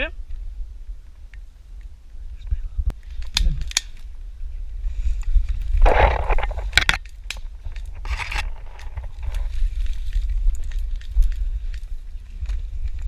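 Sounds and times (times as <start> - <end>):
rustling and scraping through brush: 2.9 - 13.0.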